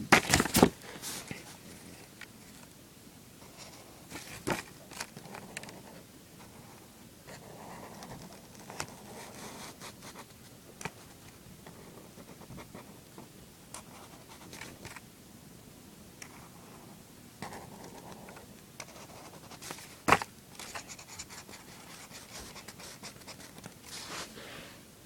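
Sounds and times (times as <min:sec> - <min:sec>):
pencil scratching on paper: 0:05.2 - 0:10.3, 0:20.6 - 0:24.3.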